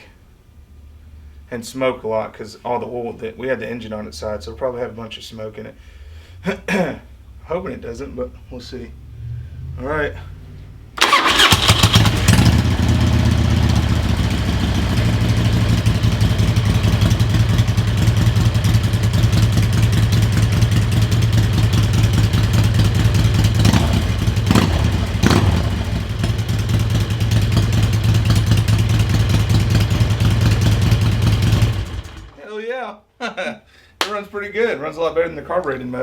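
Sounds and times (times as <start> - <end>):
engine throttle blips: 8.9 - 32.3
motorcycle engine idling: 11.0 - 32.3.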